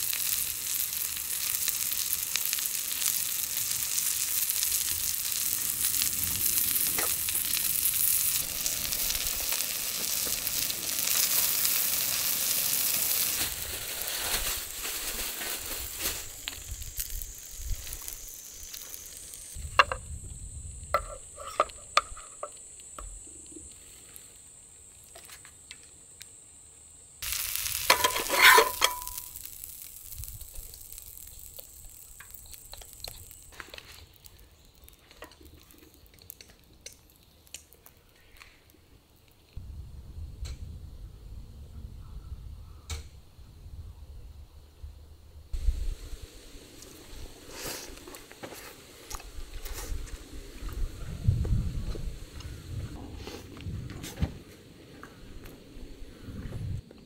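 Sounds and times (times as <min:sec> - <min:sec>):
food sizzling in a pan: 0:00.0 - 0:19.7, 0:27.2 - 0:39.6, 0:45.6 - 0:53.4.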